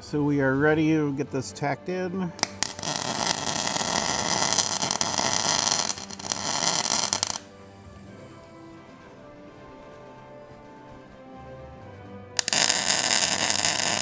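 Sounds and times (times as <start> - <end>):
quiet background music: 0.0 - 14.0
welding arc crackling: 2.4 - 8.6, 12.4 - 14.0.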